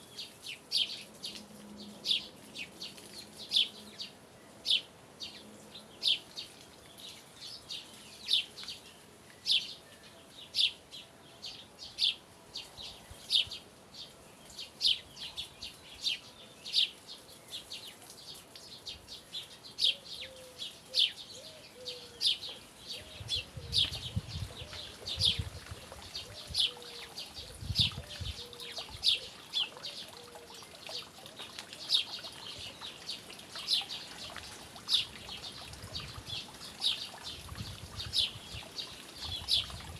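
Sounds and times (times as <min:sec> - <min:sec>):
small bird chirping: 0:11.5 - 0:39.9.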